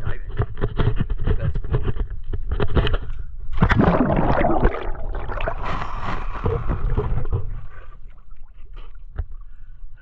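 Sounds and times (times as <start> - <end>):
water splashing in a hot tub: 3.5 - 9.4.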